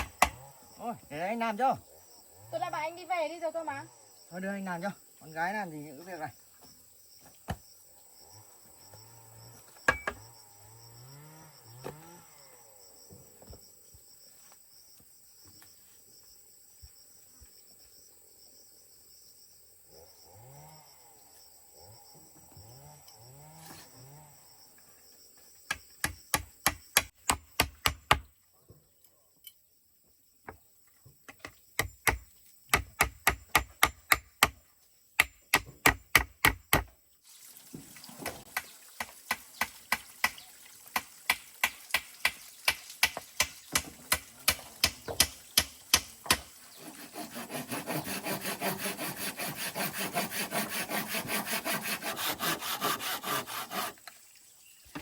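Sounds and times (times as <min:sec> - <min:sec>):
hand saw cutting wood: 0:43.8 - 0:54.2.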